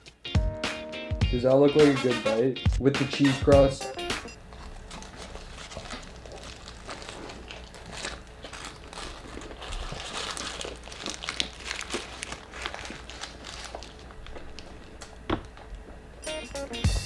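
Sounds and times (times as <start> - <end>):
background music: 0.0 - 4.4, 16.2 - 17.0
chewing with crackles: 4.5 - 16.0.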